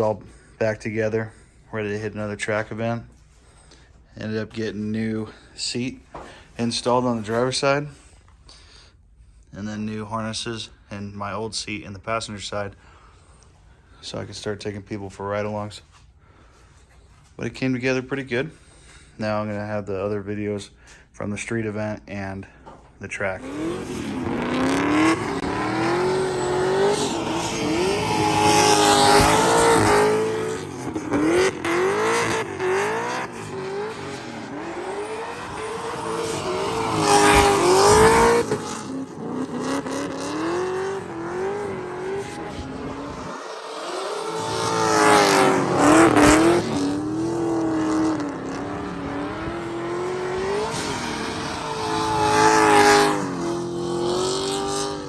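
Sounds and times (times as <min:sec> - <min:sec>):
car engine revving hard: 0:23.4 - 0:55.0.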